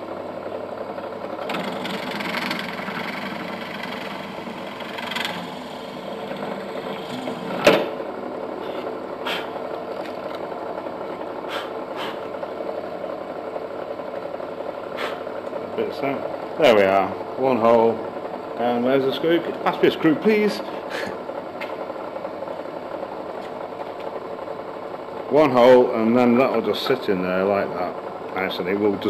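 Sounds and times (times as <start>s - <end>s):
pillar drill drilling: 1.4s - 7.7s.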